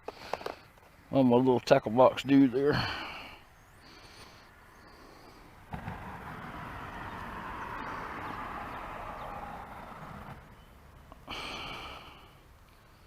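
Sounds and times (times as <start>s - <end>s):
person breathing close to microphone: 2.7s - 5.7s, 11.2s - 13.0s.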